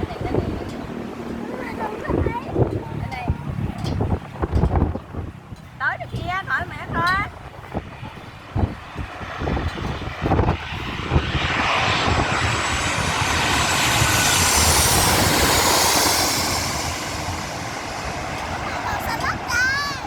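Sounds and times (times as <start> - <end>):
airplane flying overhead: 0.0 - 20.0
high whine falling in pitch: 8.6 - 20.0.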